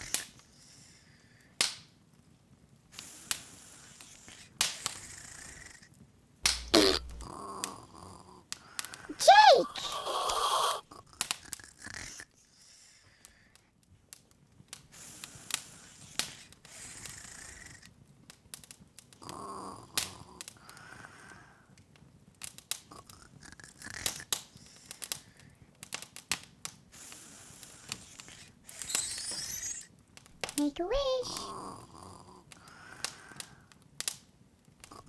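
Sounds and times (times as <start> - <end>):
wood fire crackling: 6.4 - 7.8, 24.3 - 35.0.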